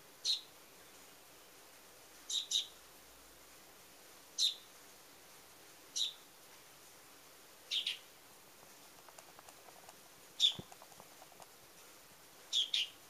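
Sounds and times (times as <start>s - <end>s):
small bird chirping: 2.3s - 2.8s, 6.0s - 6.2s, 7.7s - 11.5s, 12.5s - 13.0s.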